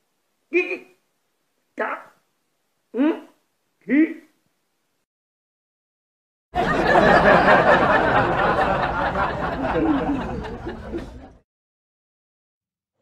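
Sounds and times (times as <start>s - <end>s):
people laughing: 6.6s - 11.4s.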